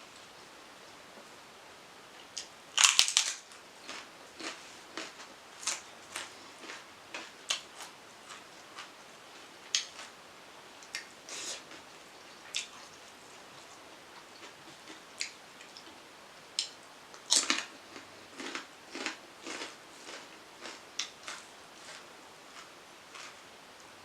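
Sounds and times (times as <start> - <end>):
crunchy bite: 2.8 - 6.8.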